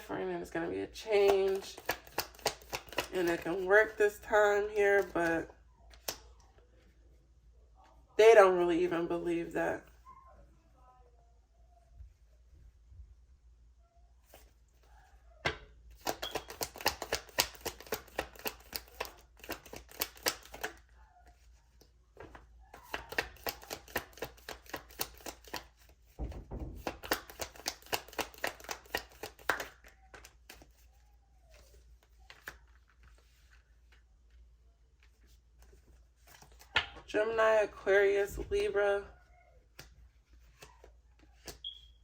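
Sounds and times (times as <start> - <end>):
cards being shuffled: 1.1 - 4.0, 4.6 - 6.5, 14.2 - 14.9, 15.9 - 37.1, 39.7 - 41.8.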